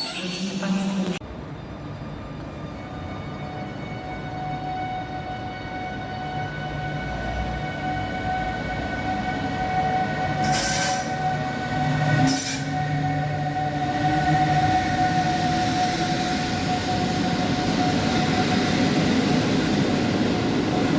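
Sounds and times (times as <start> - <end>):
train wheel squeal: 0.0 - 3.8, 10.4 - 19.7
train running hum: 0.0 - 20.9.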